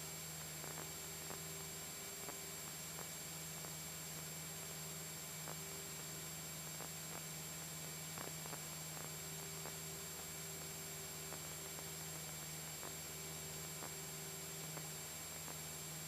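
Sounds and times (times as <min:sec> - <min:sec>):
steady hiss: 0:00.0 - 0:16.0
faint ticks: 0:00.4 - 0:03.8, 0:06.7 - 0:15.7.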